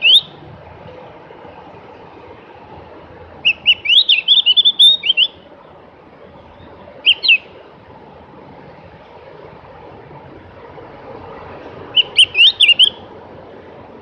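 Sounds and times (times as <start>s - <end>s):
bird chirping: 0.0s - 0.4s, 3.4s - 5.4s, 6.3s - 7.5s, 11.9s - 13.0s
low background hiss: 0.0s - 14.0s.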